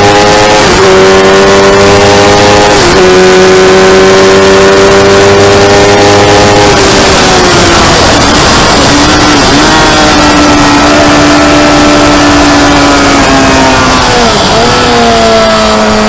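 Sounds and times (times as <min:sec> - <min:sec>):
motorcycle engine accelerating: 0:00.0 - 0:16.0
wind noise on microphone: 0:04.8 - 0:15.4.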